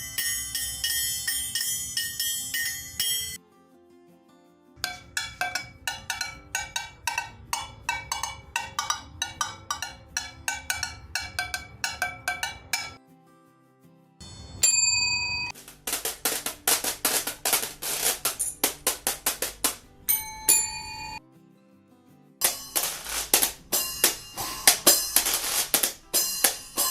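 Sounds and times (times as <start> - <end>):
ringing metallic strikes: 0.0 - 3.4, 4.8 - 13.0, 20.1 - 21.2, 22.4 - 26.9
struck bell ringing: 0.0 - 3.4, 14.6 - 15.6, 20.1 - 21.2, 22.4 - 25.6
sharp hissy strikes: 22.5 - 26.9.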